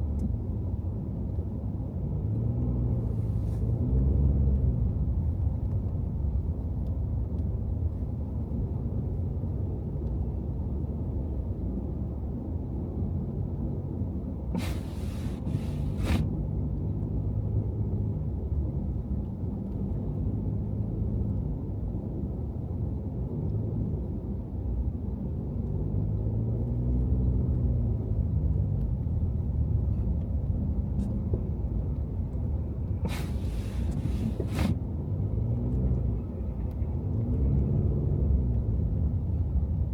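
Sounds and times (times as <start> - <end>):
car engine and road rumble: 0.0 - 39.9
brief hisses: 14.5 - 16.3, 33.0 - 34.8.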